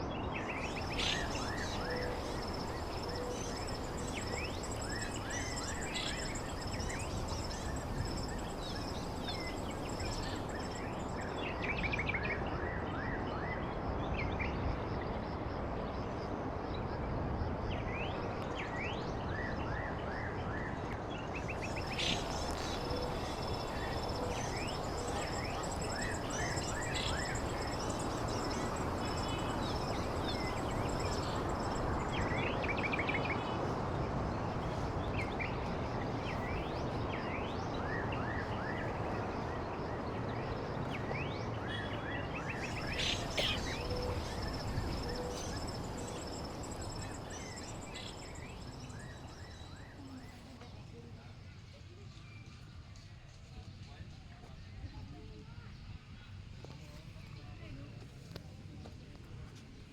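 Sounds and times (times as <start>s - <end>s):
birds chirping: 0.3s - 11.7s, 21.2s - 50.6s
shrill insect drone: 0.6s - 11.3s, 21.5s - 49.4s
background rush: 21.5s - 49.2s.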